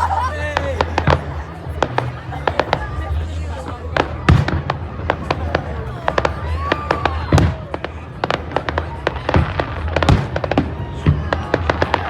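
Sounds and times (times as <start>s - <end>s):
fireworks bangs and crackles: 0.1s - 12.0s
deep firework booms: 3.9s - 12.0s.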